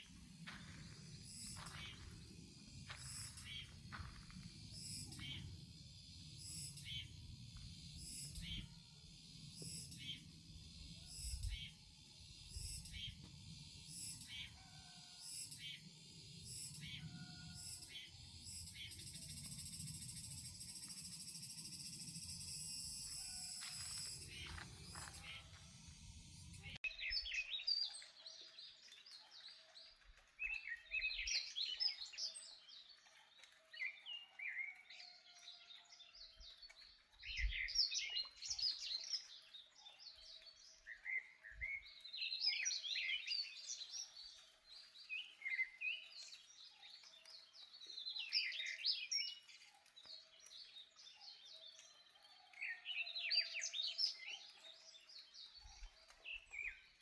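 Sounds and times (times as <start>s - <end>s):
songbird singing chirpy phrases: 26.2s - 35.2s, 36.2s - 57.0s.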